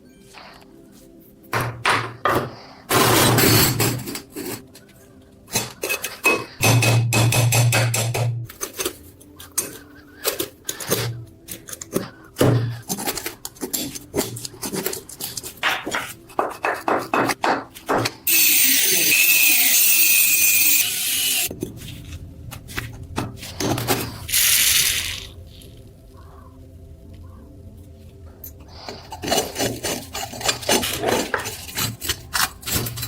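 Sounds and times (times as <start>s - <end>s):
steady hissing: 20.8s - 30.7s.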